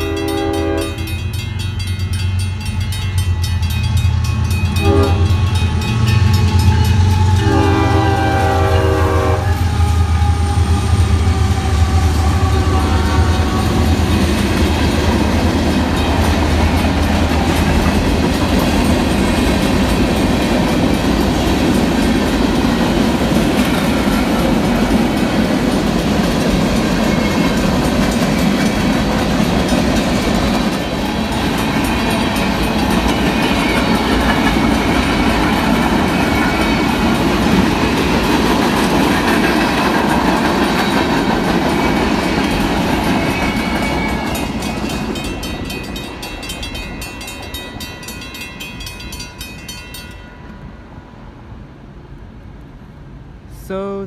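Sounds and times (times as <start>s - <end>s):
crossing signal bell ringing: 0.0s - 9.4s, 43.2s - 50.8s
train wheels clattering over rail joints: 13.8s - 48.3s.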